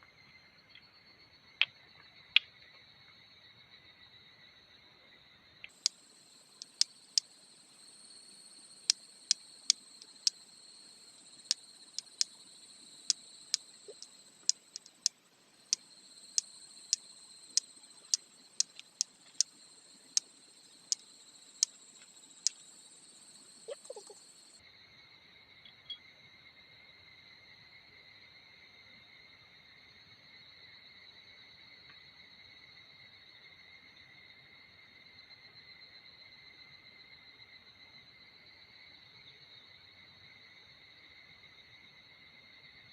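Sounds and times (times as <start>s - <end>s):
insects trilling: 5.4s - 24.6s.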